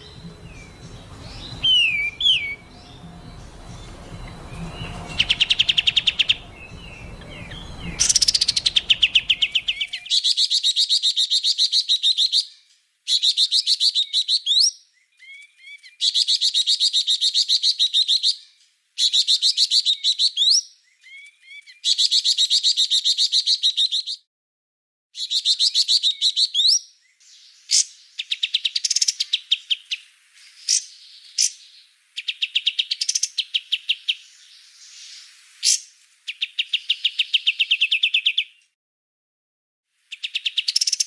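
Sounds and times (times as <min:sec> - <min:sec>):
low background noise: 0:00.0 - 0:10.2
bird whistled notes: 0:00.0 - 0:10.3
songbird trilling: 0:00.0 - 0:10.4.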